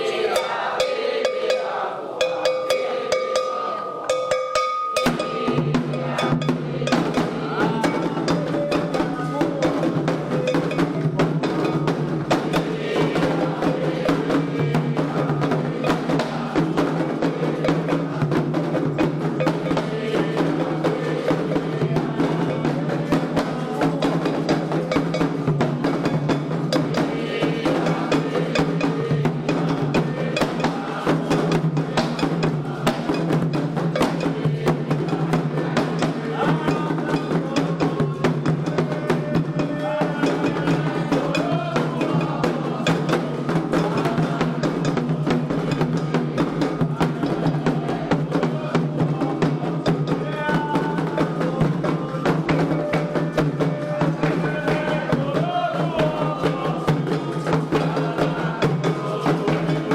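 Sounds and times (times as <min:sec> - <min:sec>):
hand drums drumming: 0:00.0 - 0:59.9
voices singing: 0:00.0 - 0:59.9
struck bell: 0:00.3 - 0:07.2.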